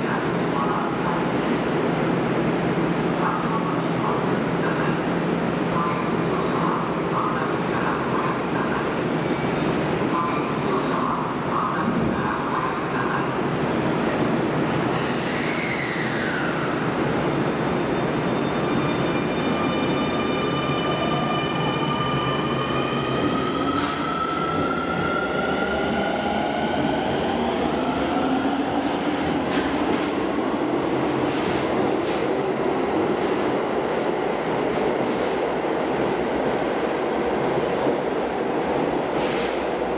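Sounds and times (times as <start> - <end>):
train wheels rumbling on rails: 23.0 - 39.9.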